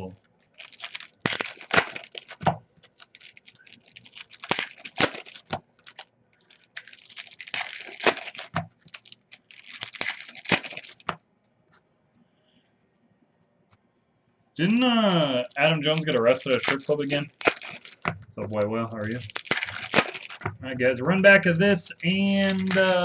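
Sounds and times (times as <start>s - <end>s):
foil wrappers tearing and crinkling: 0.4s - 11.2s, 14.6s - 18.2s, 18.8s - 23.0s.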